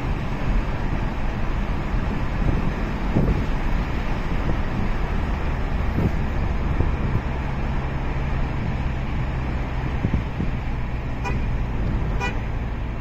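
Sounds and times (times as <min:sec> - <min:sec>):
vehicle engine hum: 0:00.0 - 0:13.0
car horn toots: 0:11.2 - 0:12.5.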